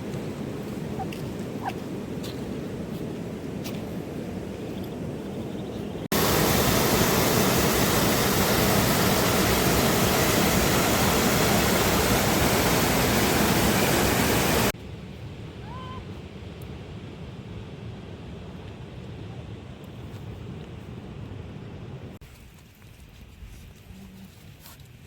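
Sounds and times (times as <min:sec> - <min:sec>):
loud rush of water: 0:06.1 - 0:14.8.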